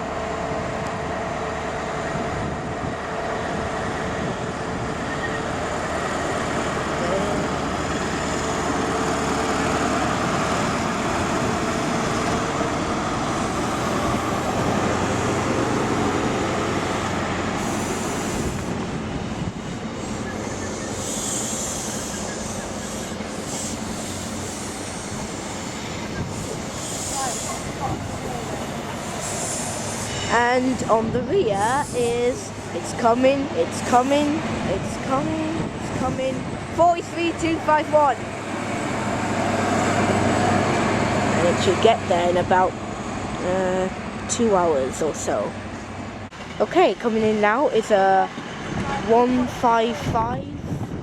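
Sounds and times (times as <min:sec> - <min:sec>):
train engine drone: 0:00.0 - 0:51.0
wheel and rail noise: 0:00.0 - 0:51.0
high squeal: 0:05.0 - 0:06.3, 0:20.0 - 0:28.5.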